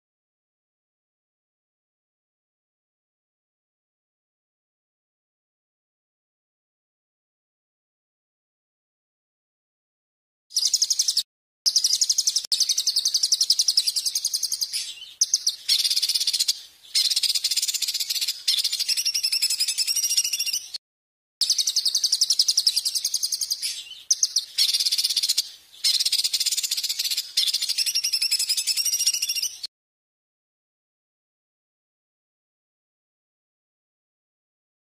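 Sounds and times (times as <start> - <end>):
songbird trilling: 10.6 - 20.8, 21.4 - 29.7.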